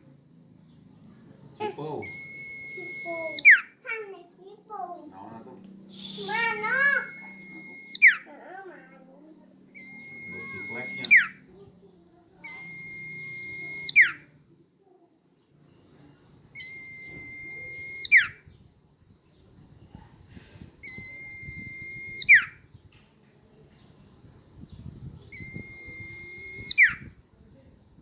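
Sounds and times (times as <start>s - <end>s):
bird whistling song: 2.0s - 3.8s, 5.9s - 8.3s, 9.7s - 11.7s, 12.4s - 14.5s, 15.6s - 18.7s, 20.8s - 23.0s, 23.8s - 27.2s.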